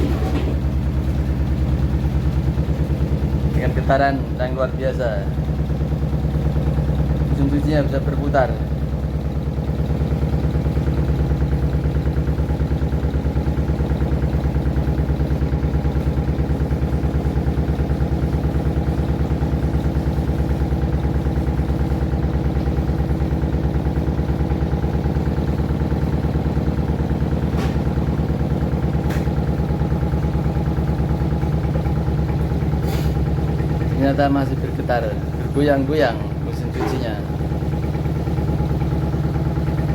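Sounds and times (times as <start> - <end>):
washing machine vibrating: 0.0 - 39.9.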